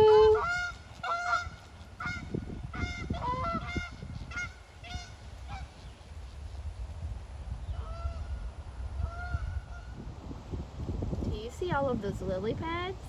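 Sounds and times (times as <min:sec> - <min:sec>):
geese honking: 0:00.0 - 0:06.1, 0:09.0 - 0:10.0.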